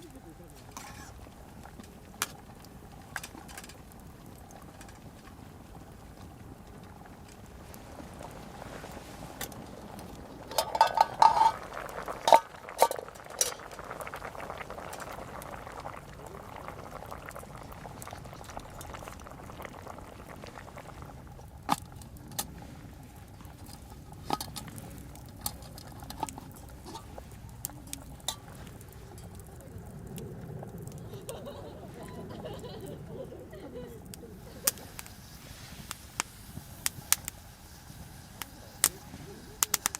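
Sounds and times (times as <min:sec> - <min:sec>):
pot simmering and bubbling: 0:00.0 - 0:39.9
metal utensil clinking on pot: 0:10.5 - 0:13.7.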